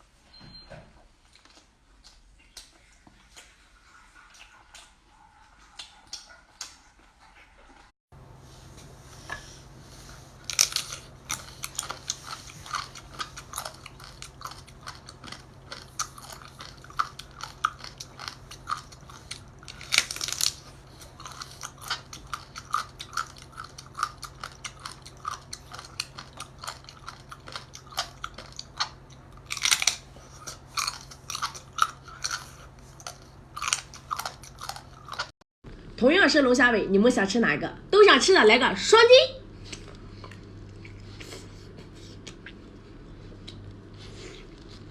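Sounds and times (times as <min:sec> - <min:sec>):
chewing with wet mouth clicks: 0:01.3 - 0:06.9, 0:10.4 - 0:35.3, 0:39.6 - 0:44.9
crunching and slurping: 0:01.3 - 0:35.3, 0:39.6 - 0:44.9
steady low hum: 0:08.2 - 0:44.9.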